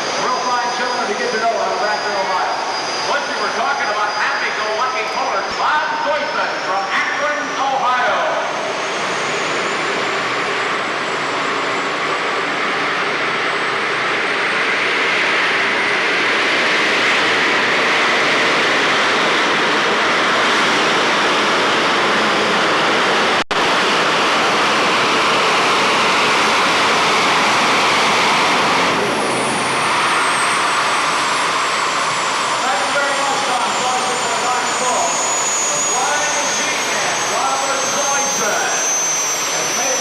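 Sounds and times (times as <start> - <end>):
tractor engine running hard: 8.2 - 40.0.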